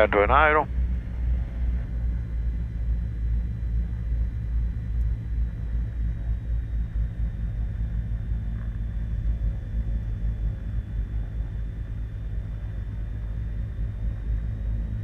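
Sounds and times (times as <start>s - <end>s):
aircraft piston engines idling: 0.0s - 0.7s
faint high whine: 0.0s - 15.0s.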